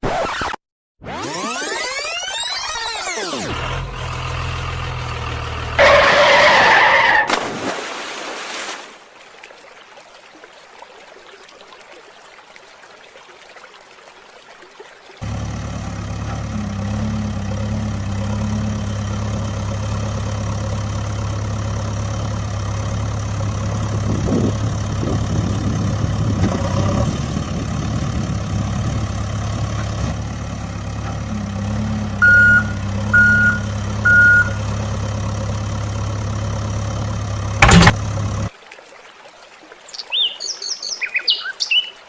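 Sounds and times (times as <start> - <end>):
heavy vehicle engine running: 3.4 - 6.4, 15.2 - 38.5
short high beeps: 32.2 - 34.6
sharp click: 37.6 - 38.0.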